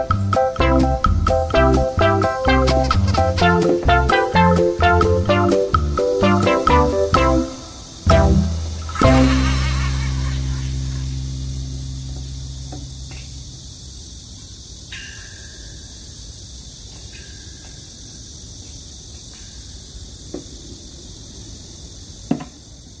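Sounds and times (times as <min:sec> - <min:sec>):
steady high hiss: 0:00.0 - 0:23.0
low rumble: 0:08.1 - 0:14.1.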